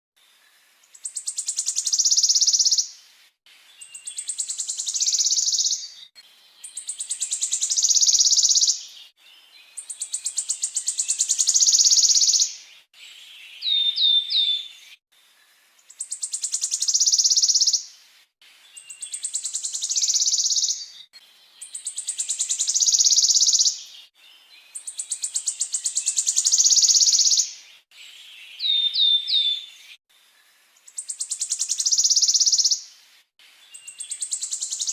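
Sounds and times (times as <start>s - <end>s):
quick whistled bird notes: 3.9s - 6.0s, 6.8s - 8.8s, 10.2s - 12.6s, 18.8s - 21.0s, 25.0s - 27.5s, 31.0s - 32.8s, 33.8s - 34.9s.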